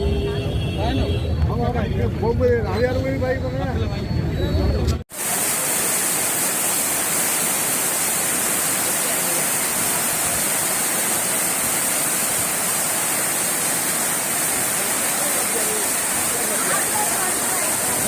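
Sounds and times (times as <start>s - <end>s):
floodwater rushing: 5.1s - 18.0s.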